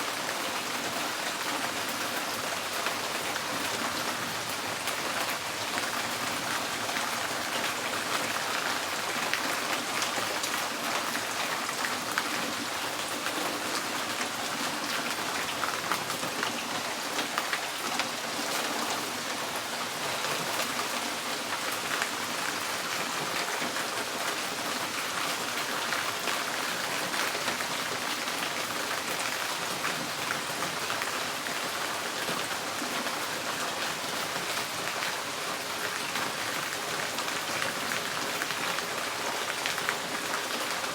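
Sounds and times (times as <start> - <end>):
rain on a tin roof: 0.0 - 40.9.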